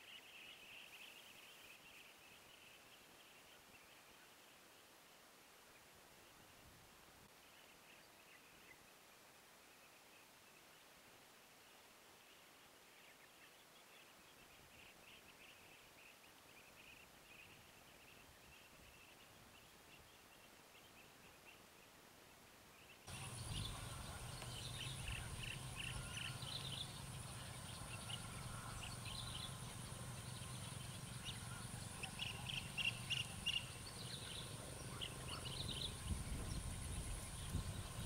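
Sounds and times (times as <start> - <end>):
low hum: 23.1 - 38.0.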